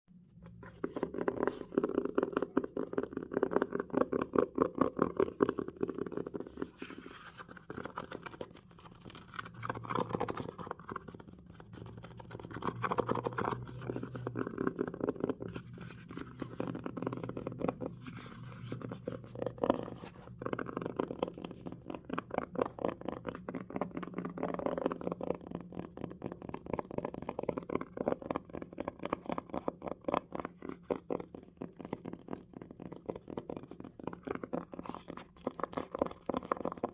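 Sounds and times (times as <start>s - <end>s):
fast finger tapping: 0.6s - 6.7s.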